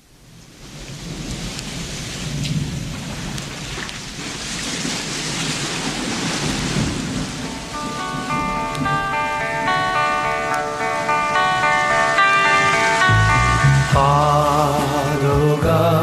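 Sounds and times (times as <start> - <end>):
ocean waves rushing: 0.6 - 16.0
band playing held chords: 7.7 - 16.0.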